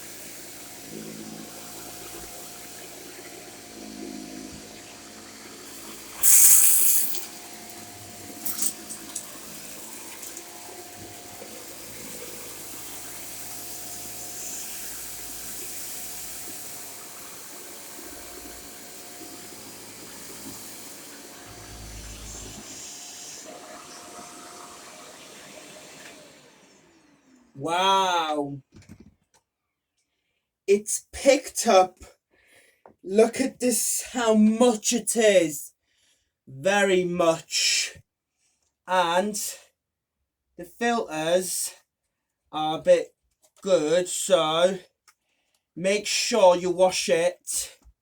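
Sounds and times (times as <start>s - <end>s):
vacuum cleaner running: 0.0s - 28.3s.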